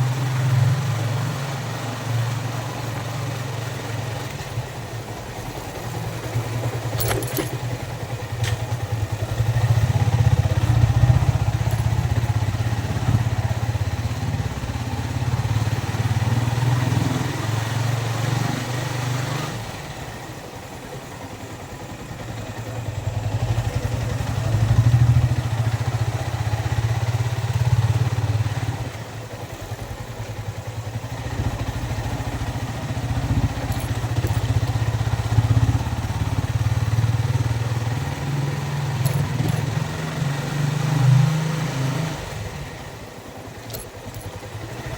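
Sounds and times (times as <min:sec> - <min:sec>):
motorcycle engine revving: 0:05.8 - 0:19.8, 0:30.6 - 0:44.9.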